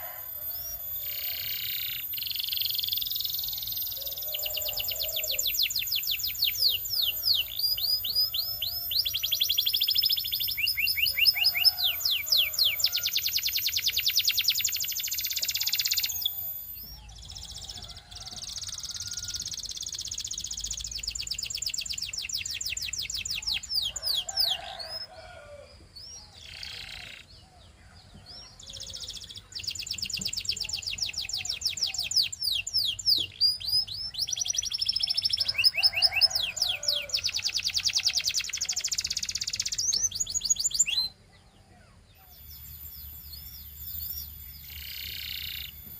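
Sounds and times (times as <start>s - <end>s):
canary singing trills: 0.0s - 45.9s.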